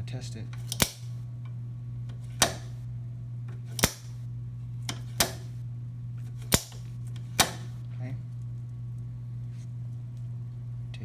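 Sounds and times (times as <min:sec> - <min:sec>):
steady low hum: 0:00.0 - 0:11.0
footpeg snapping clicks: 0:00.6 - 0:01.1, 0:03.8 - 0:04.2, 0:06.5 - 0:06.8.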